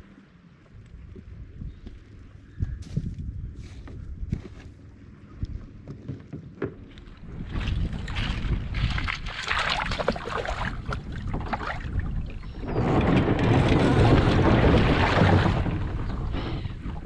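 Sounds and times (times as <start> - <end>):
wind buffeting microphone: 0.7 - 5.9, 6.8 - 17.0
water sloshing and splashing: 5.9 - 17.0.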